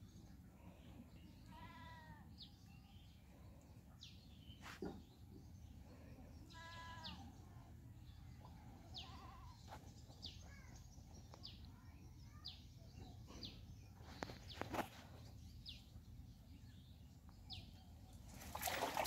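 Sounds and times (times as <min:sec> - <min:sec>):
faint bleat: 0:01.4 - 0:02.2, 0:06.5 - 0:07.3.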